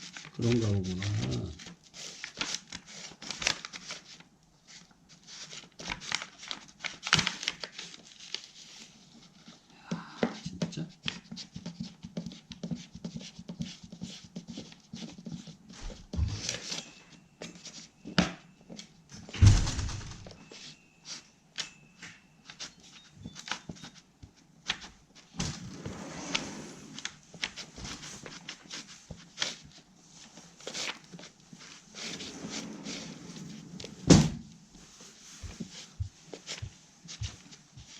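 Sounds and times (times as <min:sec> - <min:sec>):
heavy thump: 0:19.4 - 0:20.3.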